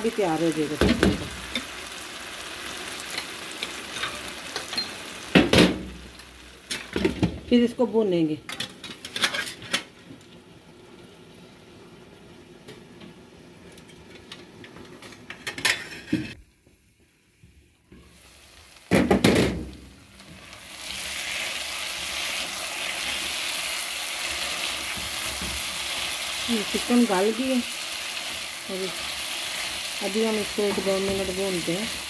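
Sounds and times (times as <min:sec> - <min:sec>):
chicken sizzling in a pan: 0:00.0 - 0:07.4, 0:17.9 - 0:32.0.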